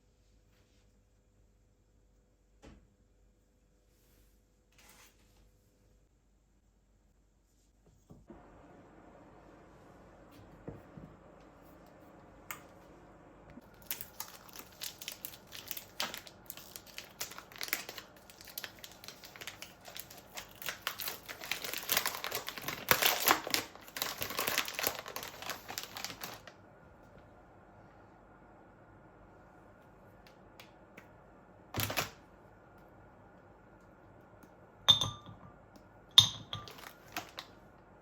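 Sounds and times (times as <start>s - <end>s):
packaging crinkling: 13.6s - 26.5s, 31.8s - 32.2s, 36.7s - 37.6s.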